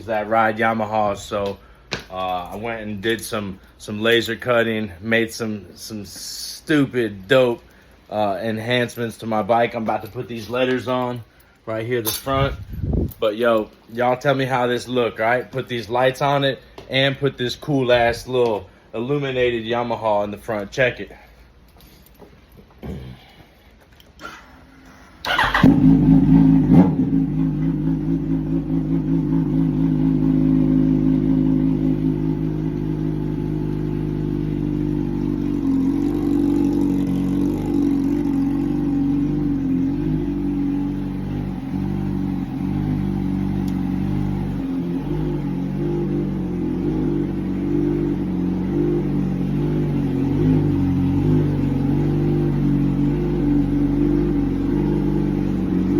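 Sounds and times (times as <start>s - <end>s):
motorcycle engine starting and idling: 25.2s - 55.9s.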